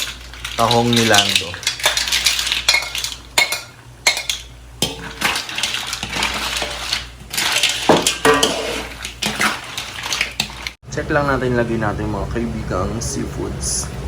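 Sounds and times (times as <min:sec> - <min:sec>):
mussel shells clattering in metal pot: 0:00.0 - 0:10.8.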